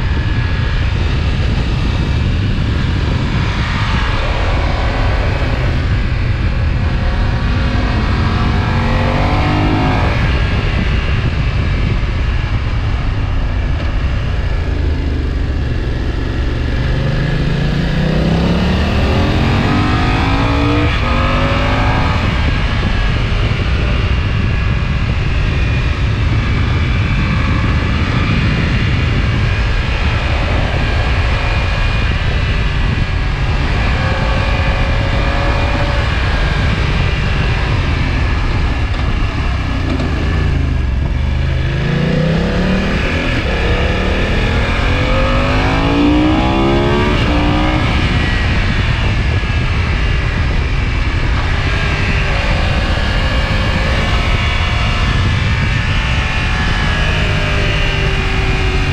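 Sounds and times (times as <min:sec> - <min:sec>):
motorcycle engine revving: 0:00.0 - 0:58.9
road noise: 0:00.0 - 0:58.9
wind rushing: 0:00.0 - 0:58.9.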